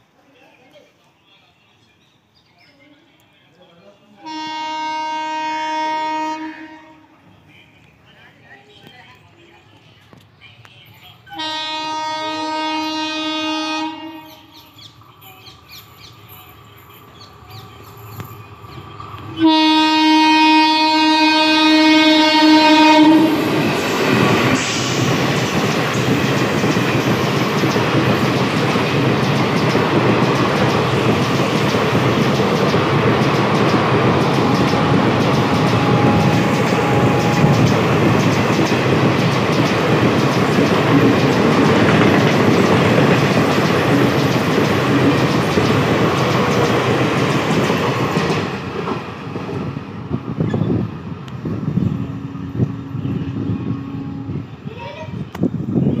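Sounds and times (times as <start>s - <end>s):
train horn blast: 4.2s - 7.3s, 11.4s - 14.6s, 19.3s - 23.7s, 34.2s - 37.8s, 51.8s - 54.7s
train wheels clattering on rail: 23.3s - 51.8s.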